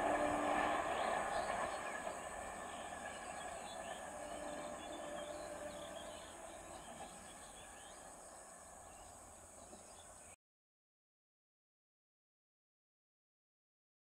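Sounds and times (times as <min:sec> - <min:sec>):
insects hissing: 0:00.0 - 0:10.3
faint train rumble: 0:00.0 - 0:10.4
small birds chirping: 0:00.3 - 0:10.4.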